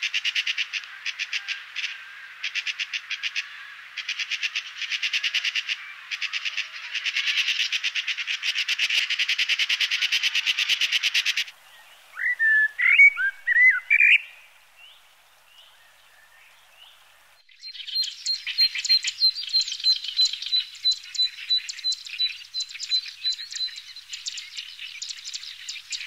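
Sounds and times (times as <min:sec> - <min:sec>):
rapid pulsing bird call: 0:00.0 - 0:14.5
fluty whistled birdsong: 0:11.6 - 0:26.0
repeated high bird chirps: 0:12.2 - 0:14.3, 0:17.5 - 0:26.0.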